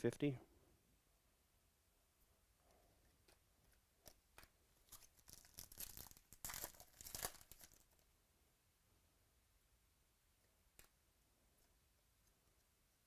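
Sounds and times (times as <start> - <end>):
plastic packaging crackling: 4.9 - 8.0.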